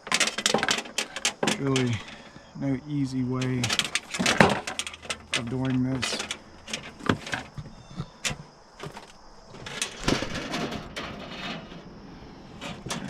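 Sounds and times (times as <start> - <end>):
plastic pieces knocking and clicking: 0.0 - 2.2, 3.4 - 10.8.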